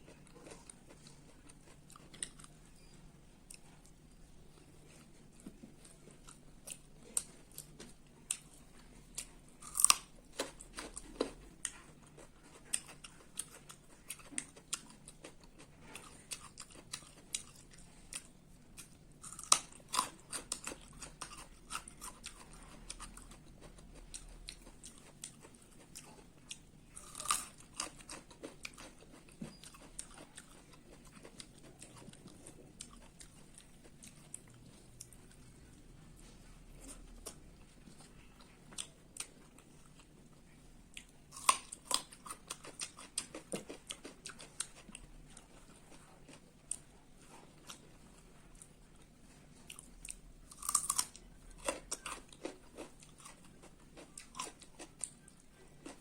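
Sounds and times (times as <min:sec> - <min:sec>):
person chewing and biting food: 0:00.0 - 0:56.0.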